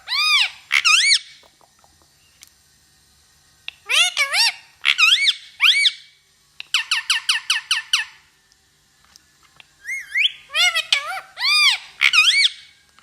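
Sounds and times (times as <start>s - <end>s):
parrot whistling calls: 0.0s - 1.4s, 3.7s - 8.2s, 9.8s - 12.8s.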